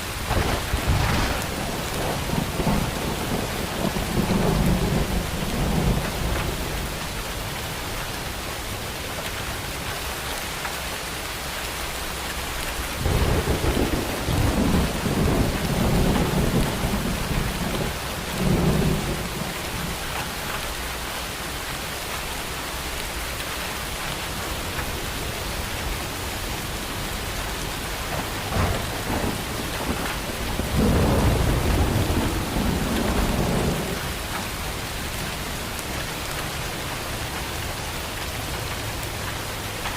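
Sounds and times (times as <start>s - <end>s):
thunder rumbling: 0.0s - 8.0s, 13.0s - 20.7s, 26.4s - 36.5s
rain falling: 0.0s - 39.9s.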